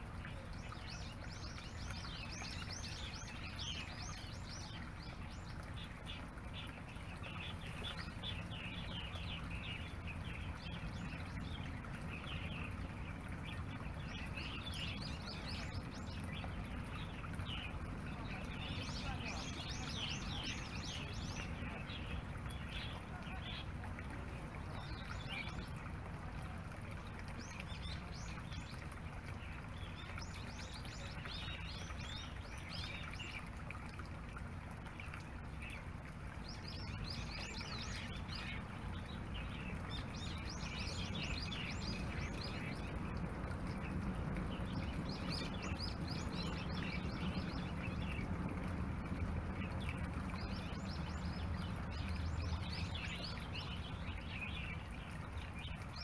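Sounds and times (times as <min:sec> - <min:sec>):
low outdoor rumble: 0:00.0 - 0:56.0
small birds chirping: 0:00.0 - 0:56.0.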